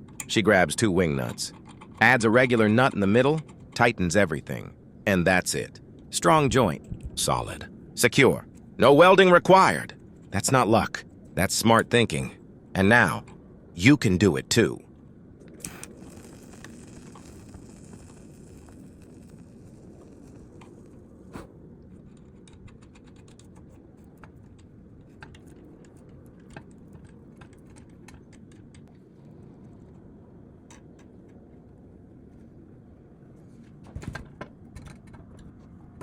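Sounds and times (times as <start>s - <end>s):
low background rumble: 0.0s - 36.0s
light clicks and taps: 21.8s - 29.0s.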